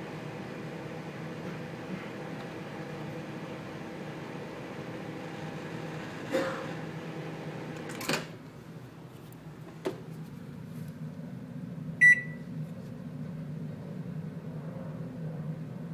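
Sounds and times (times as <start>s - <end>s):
microwave oven humming: 0.0s - 15.9s
microwave electronic beep: 12.0s - 12.4s.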